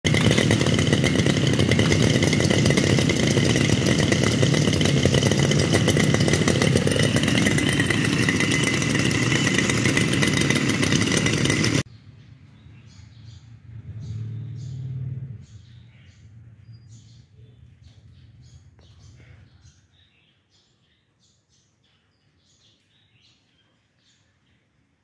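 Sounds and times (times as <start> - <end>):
small mower engine running: 0.0 - 11.9.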